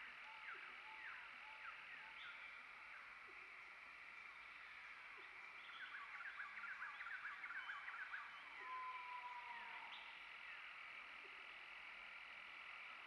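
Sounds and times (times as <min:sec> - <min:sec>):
faint bird call: 0:05.2 - 0:10.6.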